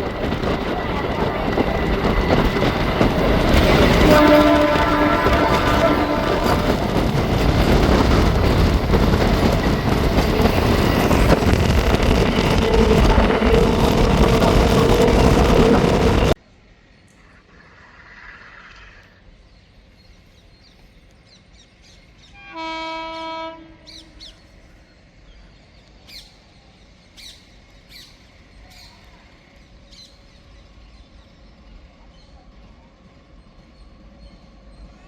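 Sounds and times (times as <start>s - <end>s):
train horn blast: 3.5s - 7.2s, 22.3s - 24.4s.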